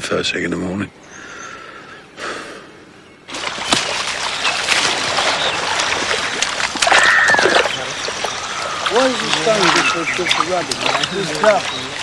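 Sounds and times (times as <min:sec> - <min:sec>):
water splashing and sloshing: 0:03.3 - 0:12.0.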